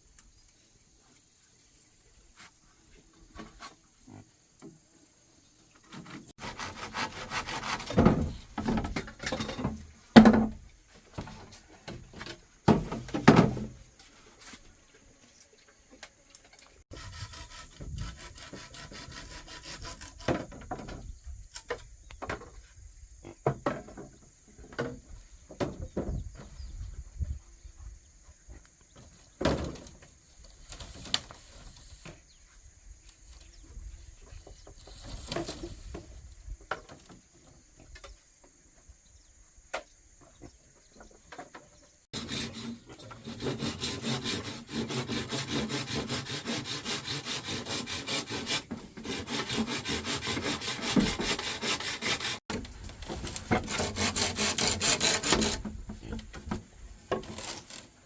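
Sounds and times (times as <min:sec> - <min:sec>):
hand saw cutting wood: 0:05.9 - 0:09.3, 0:16.7 - 0:20.6, 0:42.1 - 0:56.2, 0:57.1 - 0:58.0.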